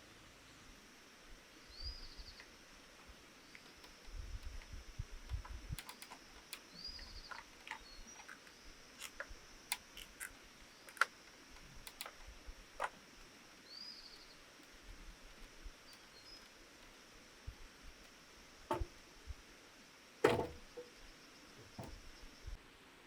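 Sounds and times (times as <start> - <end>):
high insect drone: 0.0 - 22.6
bird chirping: 1.6 - 2.5, 5.9 - 8.8, 13.6 - 14.5, 15.8 - 17.0
light clicks and knocks: 18.7 - 19.0, 20.2 - 21.0, 21.6 - 22.0.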